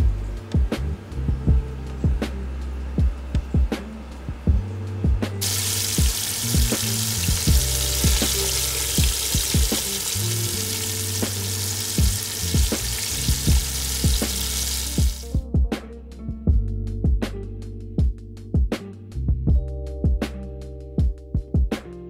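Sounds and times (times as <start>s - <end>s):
fish frying in oil: 5.4s - 15.2s.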